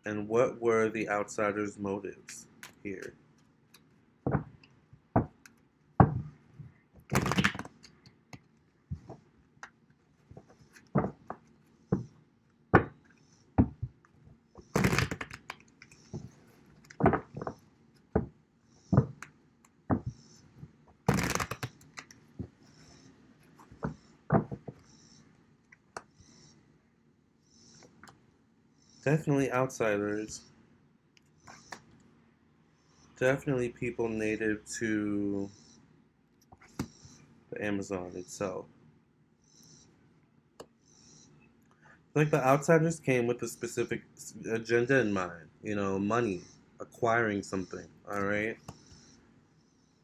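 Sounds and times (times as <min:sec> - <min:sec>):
cards being shuffled: 0:07.1 - 0:11.6, 0:14.6 - 0:17.6, 0:21.0 - 0:22.5.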